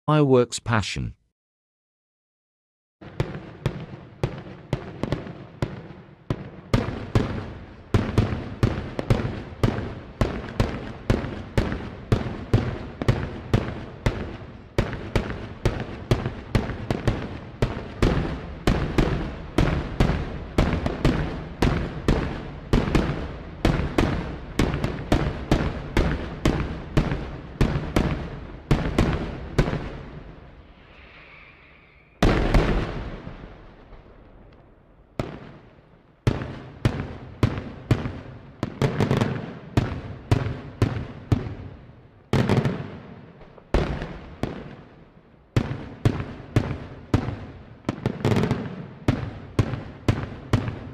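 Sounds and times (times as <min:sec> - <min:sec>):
fireworks loud bangs: 0:03.0 - 0:34.2.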